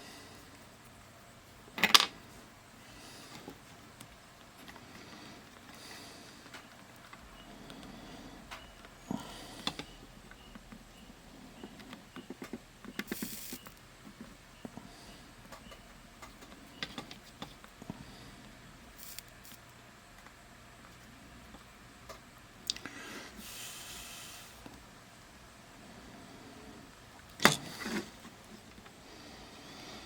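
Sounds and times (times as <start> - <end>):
short hiss: 13.1 - 13.6, 23.2 - 24.6.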